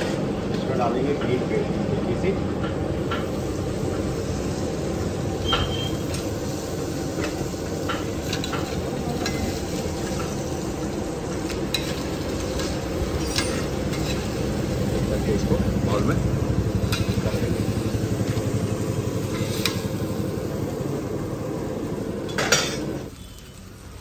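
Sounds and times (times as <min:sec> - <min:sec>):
garlic paste sizzling in ghee: 0:03.0 - 0:21.3, 0:22.9 - 0:24.0
metal spatula scraping pan: 0:11.7 - 0:14.4.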